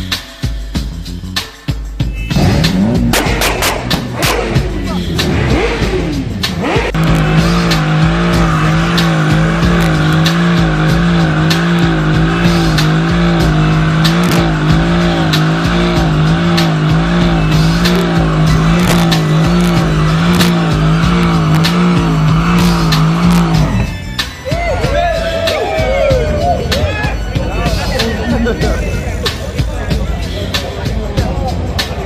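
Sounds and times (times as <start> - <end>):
car engine at high revs: 2.3 - 24.1
engine crackles and pops: 2.4 - 23.9.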